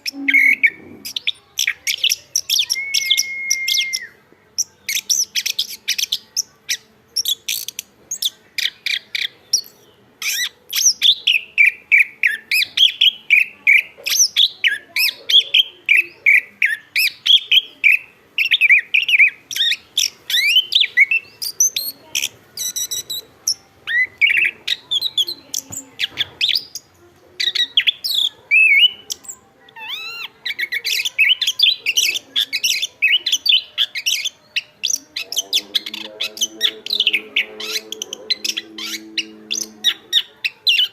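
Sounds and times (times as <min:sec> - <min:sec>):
thrush singing: 0:27.8 - 0:40.9.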